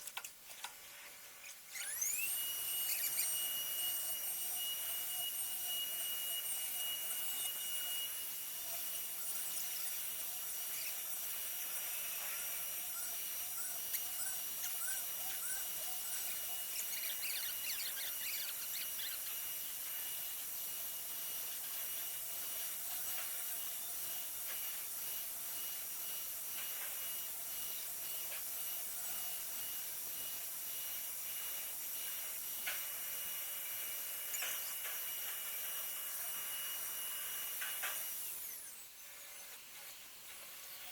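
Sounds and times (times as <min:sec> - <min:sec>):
brief squeals: 0:01.7 - 0:03.5
lathe spindle whine: 0:01.7 - 0:40.9.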